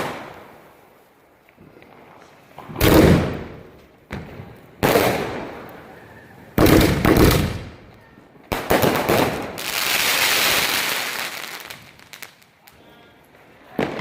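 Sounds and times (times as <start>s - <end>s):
firework shots: 0.0s - 0.7s, 2.6s - 7.9s, 8.5s - 12.5s
firework hissing and crackling: 8.5s - 14.0s.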